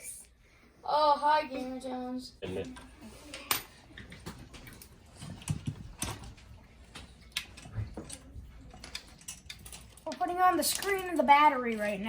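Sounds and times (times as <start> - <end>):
clicks and knocks of tools: 3.3 - 11.9.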